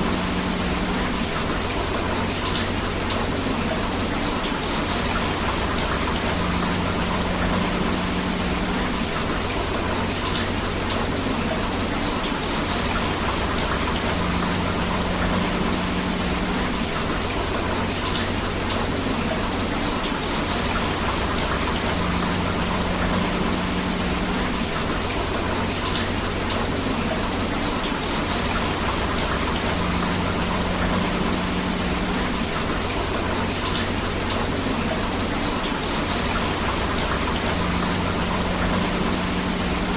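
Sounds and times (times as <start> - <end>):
rushing river water: 0.0 - 39.9
steady rain: 0.0 - 39.9.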